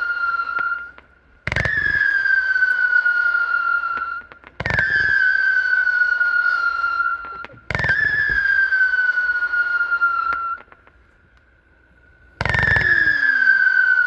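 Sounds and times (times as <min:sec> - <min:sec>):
firework launch bang: 0:00.0 - 0:11.0, 0:12.3 - 0:14.0
firework whistle falling in pitch: 0:00.0 - 0:11.0, 0:11.9 - 0:14.0.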